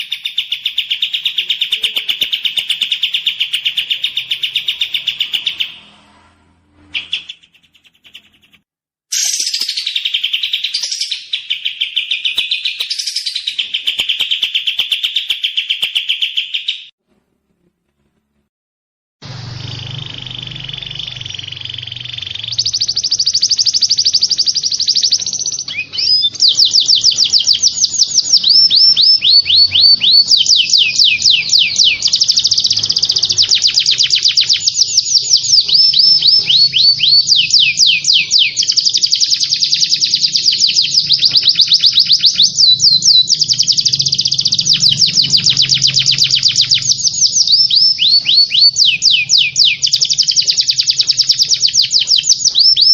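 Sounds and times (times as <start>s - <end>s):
songbird trilling: 19.6s - 52.9s.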